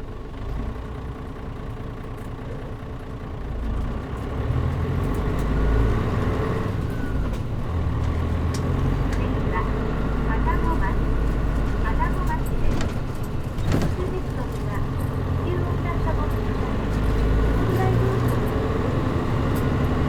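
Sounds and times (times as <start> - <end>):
bus engine from inside: 0.0 - 20.0.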